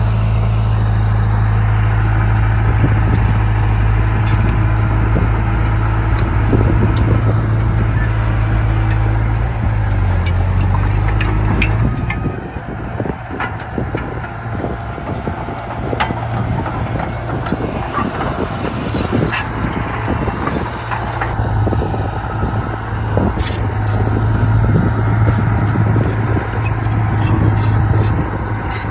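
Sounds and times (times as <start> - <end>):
heavy diesel machinery running: 0.0 - 28.9
metallic clanks and clicks: 4.2 - 21.4, 23.3 - 28.9.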